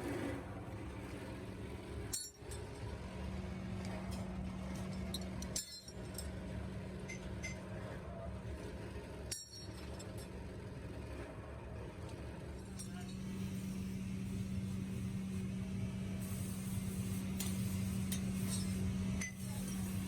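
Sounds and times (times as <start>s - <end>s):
machine electric hum: 0.0s - 20.0s
metal parts clinking: 4.7s - 6.3s.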